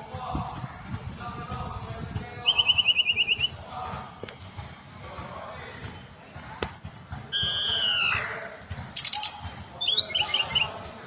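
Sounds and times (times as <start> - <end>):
quick high chirps: 1.7 - 3.7, 6.6 - 8.2.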